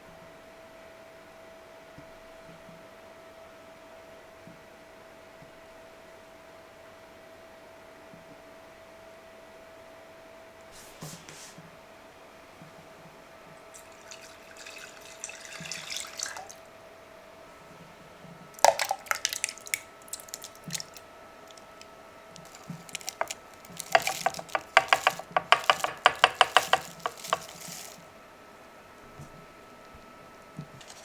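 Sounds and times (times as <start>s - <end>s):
water dripping in a sink: 13.7s - 16.6s, 18.5s - 28.0s.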